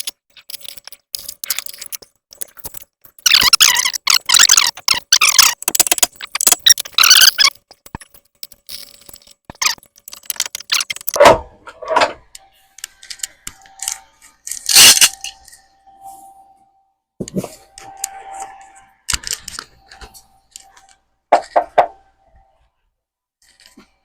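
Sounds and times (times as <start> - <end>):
scraping clicks: 0.0 - 15.6.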